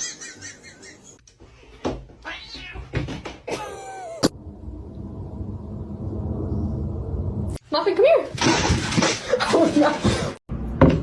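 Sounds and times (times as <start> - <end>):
cat meowing: 2.2 - 2.9.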